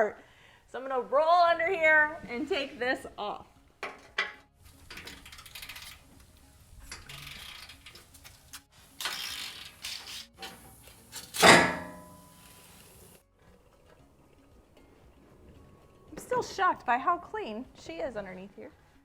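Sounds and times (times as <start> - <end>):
ratchet clicking and rattling: 4.6 - 12.8
loud ringing metallic clang: 11.4 - 12.4.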